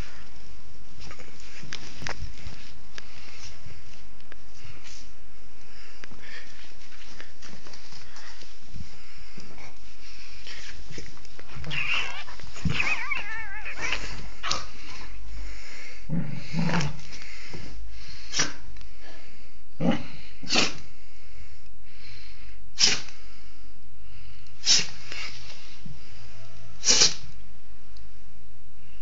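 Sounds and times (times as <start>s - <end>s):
dog sneezing: 18.3s - 18.6s, 20.4s - 20.8s, 22.8s - 23.1s, 24.6s - 25.0s, 26.8s - 27.3s.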